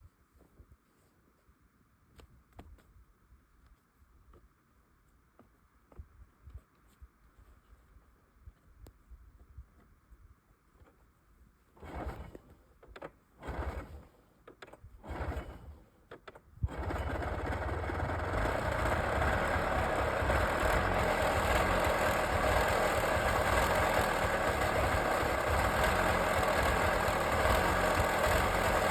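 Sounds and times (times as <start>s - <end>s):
snowmobile engine starting: 11.8s - 28.9s.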